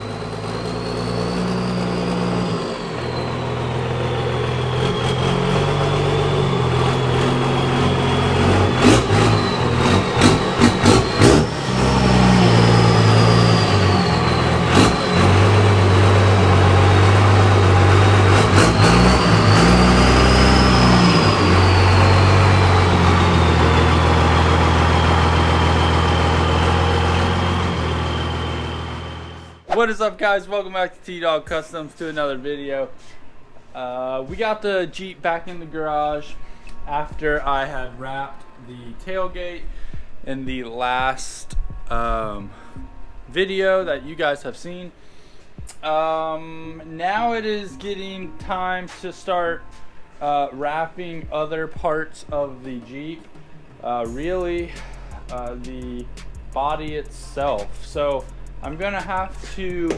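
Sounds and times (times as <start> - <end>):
car engine running: 0.0 - 29.7, 54.1 - 59.9.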